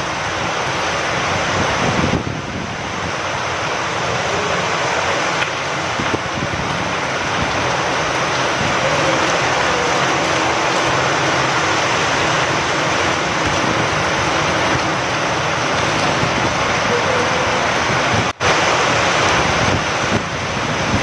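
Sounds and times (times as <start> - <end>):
rain falling: 0.0 - 21.0
wind: 0.0 - 21.0
raindrop ticks: 5.3 - 6.2.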